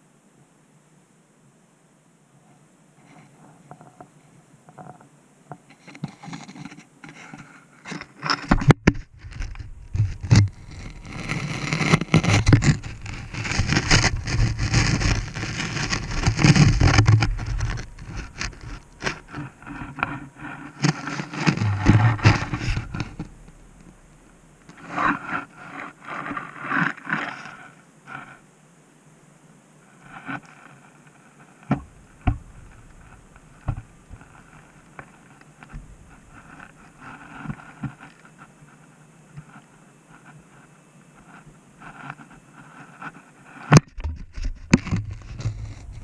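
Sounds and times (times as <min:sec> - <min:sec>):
camera scraping against borehole walls: 0:05.7 - 0:28.3, 0:31.6 - 0:38.8, 0:41.2 - 0:46.0.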